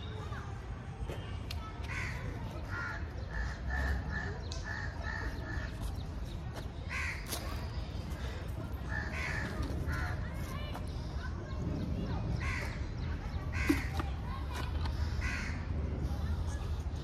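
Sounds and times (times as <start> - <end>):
birds calling: 1.9 - 15.8
steady low rumble: 14.9 - 17.0.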